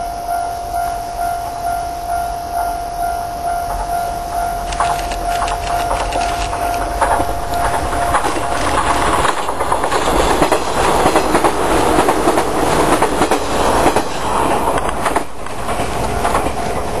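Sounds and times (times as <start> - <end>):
train wheels clattering over rail joints: 4.6 - 17.0.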